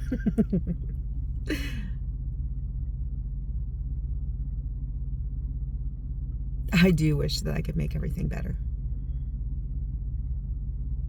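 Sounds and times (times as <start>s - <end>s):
steady low rumble: 0.0s - 11.0s
breathy sigh: 1.5s - 1.9s.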